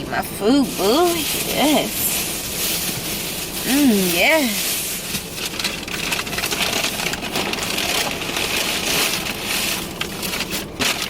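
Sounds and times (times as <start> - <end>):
food bag and wrappers rustling: 0.4 - 11.0.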